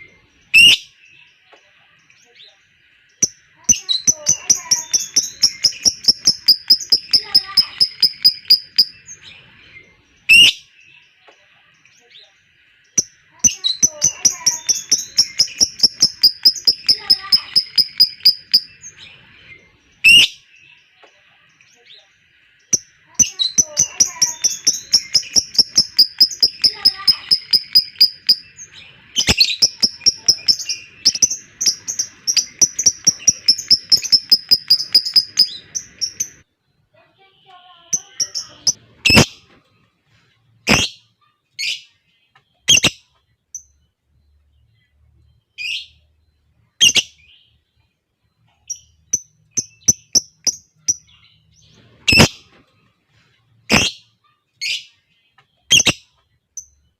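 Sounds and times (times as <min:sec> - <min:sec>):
lovebird chattering: 0:03.2 - 0:09.2, 0:12.9 - 0:19.0, 0:22.6 - 0:36.4, 0:37.9 - 0:39.4, 0:40.6 - 0:40.9, 0:46.8 - 0:47.2, 0:48.7 - 0:51.2, 0:53.7 - 0:54.0.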